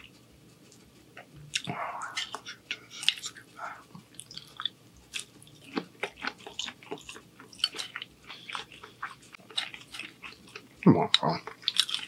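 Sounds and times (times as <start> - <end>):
chewing mouth clicks: 11.4 - 12.0.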